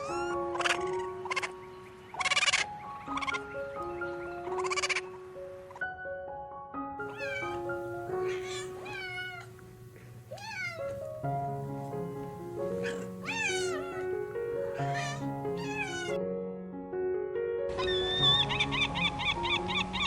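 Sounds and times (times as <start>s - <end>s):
light background music: 0.0s - 20.0s
cat meowing: 7.0s - 9.6s, 10.3s - 11.1s, 12.8s - 16.2s.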